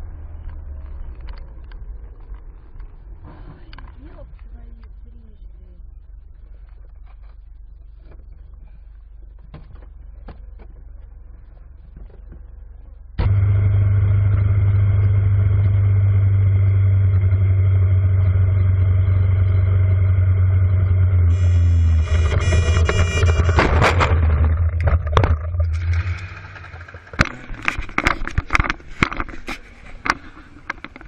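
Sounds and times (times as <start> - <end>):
faint low hum: 0.0 - 31.0
vehicle engine drone: 0.0 - 31.0
scattered clicks: 21.3 - 31.0.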